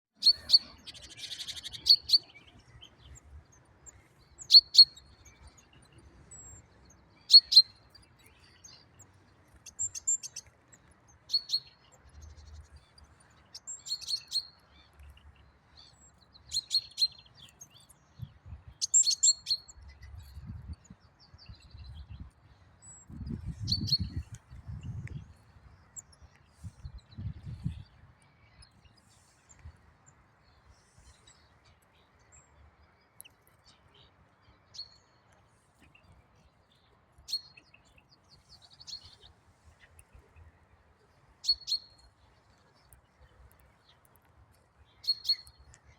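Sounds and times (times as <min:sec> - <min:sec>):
small bird chirping: 0:00.2 - 0:03.3, 0:03.9 - 0:05.8, 0:06.4 - 0:29.7, 0:41.4 - 0:44.2, 0:44.8 - 0:45.9.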